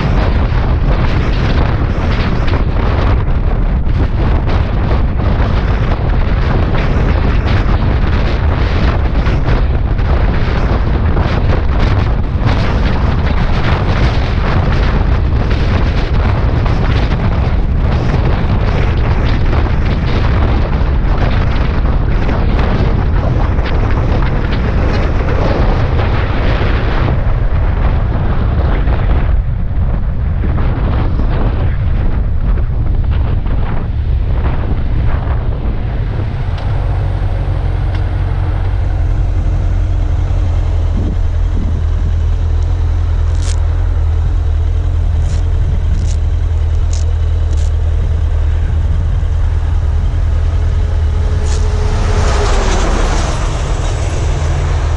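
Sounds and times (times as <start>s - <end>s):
motorcycle engine and road noise: 0.0s - 54.9s
wind buffeting microphone: 0.0s - 54.9s.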